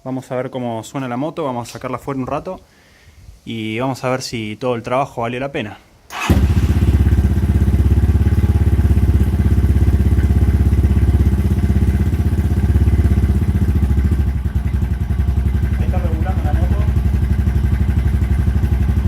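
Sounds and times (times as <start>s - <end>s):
motorcycle engine idling: 6.2s - 19.0s.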